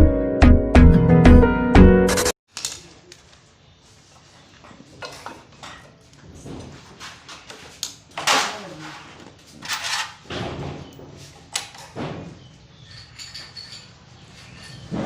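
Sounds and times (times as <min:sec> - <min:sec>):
metal parts knocking and scraping: 0:08.2 - 0:15.0.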